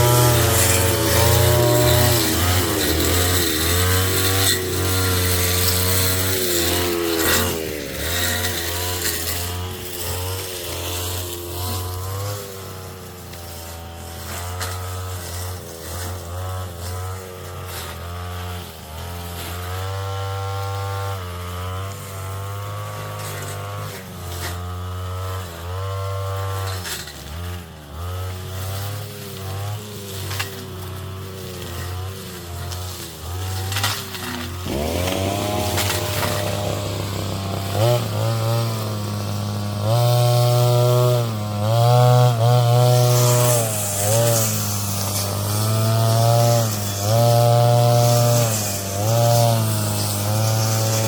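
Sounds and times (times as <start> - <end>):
brush cutter engine under load: 0.0 - 51.0
cut vegetation ticks and hits: 31.6 - 39.0.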